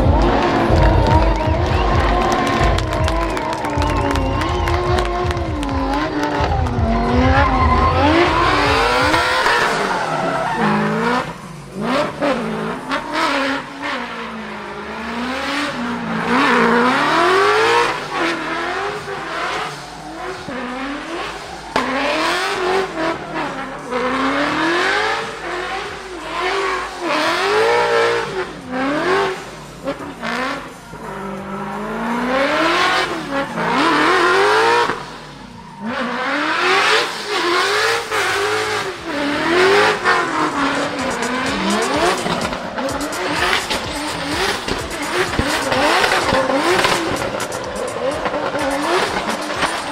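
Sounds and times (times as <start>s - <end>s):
tyres squealing: 0.0s - 14.1s
car engine revving: 0.0s - 49.9s.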